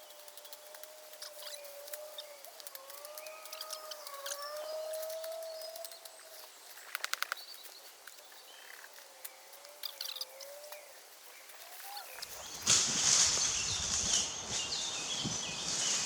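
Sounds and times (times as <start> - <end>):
loud rustling: 12.2 - 16.0.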